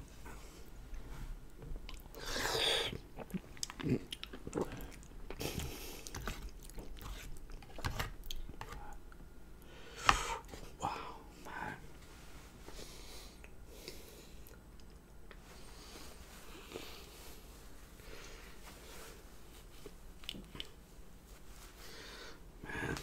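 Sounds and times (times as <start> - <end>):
person chewing food: 1.8 - 9.7, 19.8 - 20.8.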